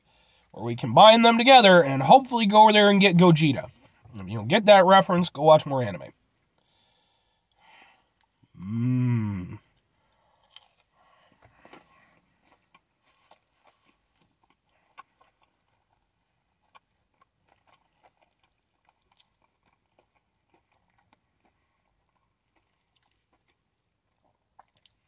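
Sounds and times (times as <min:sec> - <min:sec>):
crunchy chewing: 0:09.6 - 0:25.0.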